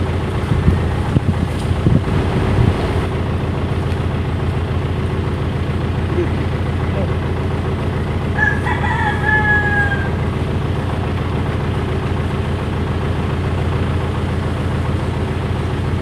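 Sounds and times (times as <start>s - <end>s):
engine idling hum: 0.0s - 16.0s
rooster crowing: 8.3s - 10.4s.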